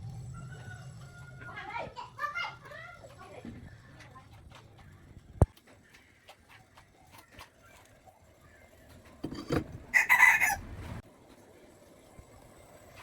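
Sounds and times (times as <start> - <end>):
rooster crowing: 0.3 - 1.6, 9.9 - 10.8.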